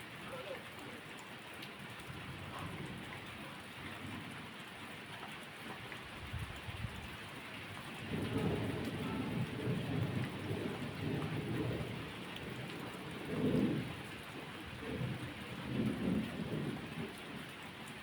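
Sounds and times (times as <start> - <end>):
steady rain: 0.0 - 18.0
thunder rumbling: 8.0 - 17.2.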